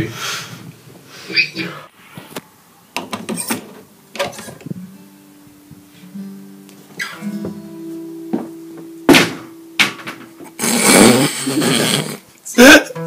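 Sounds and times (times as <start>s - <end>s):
guitar notes plucked slowly: 3.7s - 13.0s
sharp knock: 9.1s - 10.3s.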